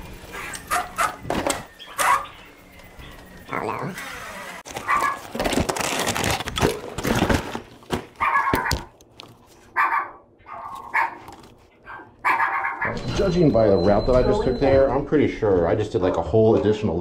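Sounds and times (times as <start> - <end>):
dog barking: 0.3 - 1.2, 2.0 - 2.3, 4.8 - 5.3, 8.2 - 8.9, 9.7 - 13.0
rustling and clattering: 4.7 - 9.7.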